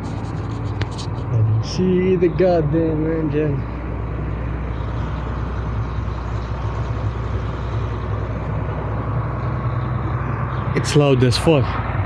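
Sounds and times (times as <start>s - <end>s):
large vehicle engine running: 0.0s - 12.0s.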